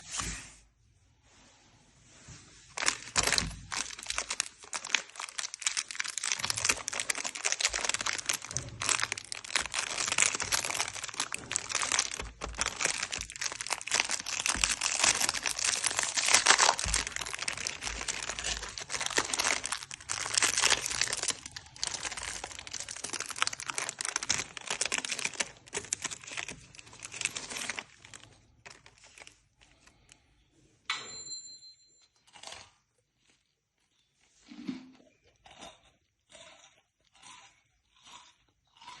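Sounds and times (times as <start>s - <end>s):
candy wrappers crinkling and tearing: 2.7s - 30.5s.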